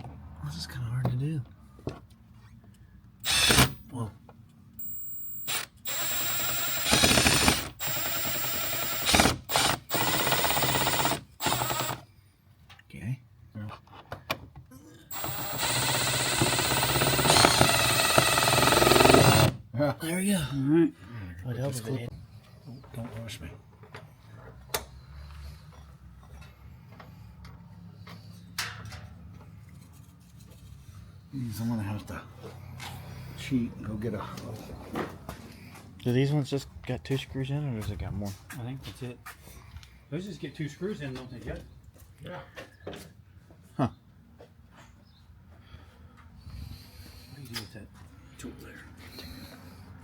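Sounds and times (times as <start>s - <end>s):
cordless power driver whirring: 3.2s - 3.8s, 4.8s - 12.0s, 15.1s - 19.6s
ratchet-like rattling: 5.8s - 12.0s, 15.1s - 19.6s.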